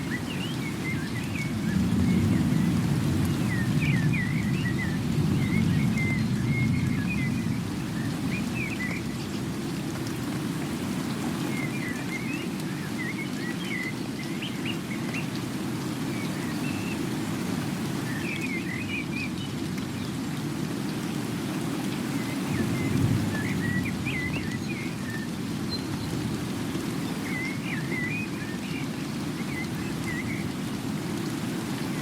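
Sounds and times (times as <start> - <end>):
steady rain: 0.0 - 32.0.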